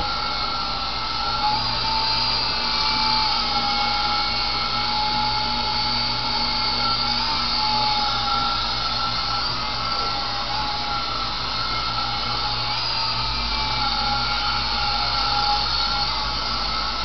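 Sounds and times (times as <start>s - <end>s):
toy helicopter whine: 0.0s - 17.0s.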